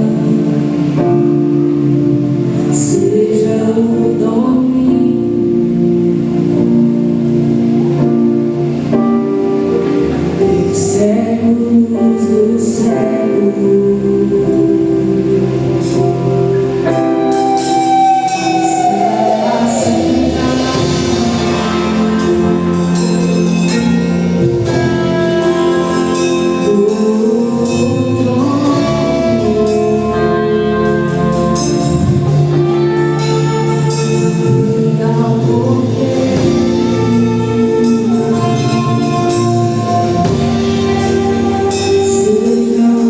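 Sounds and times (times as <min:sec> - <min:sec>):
worship band playing chords: 0:00.0 - 0:43.0
voices singing long notes: 0:17.3 - 0:43.0.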